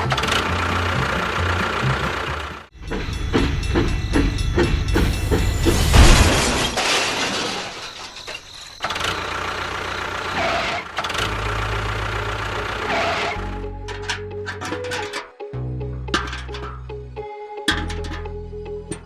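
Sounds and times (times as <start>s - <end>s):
small engine running: 0.0s - 5.6s, 8.8s - 14.2s.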